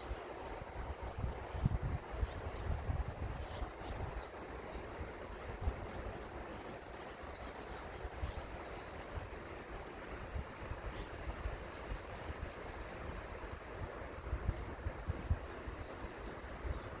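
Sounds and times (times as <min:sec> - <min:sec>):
wind buffeting microphone: 0:00.6 - 0:04.2, 0:10.2 - 0:17.0.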